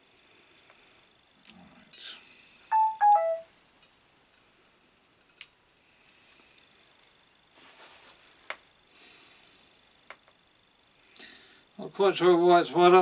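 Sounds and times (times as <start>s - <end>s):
soft scraping rustles: 6.8s - 8.7s.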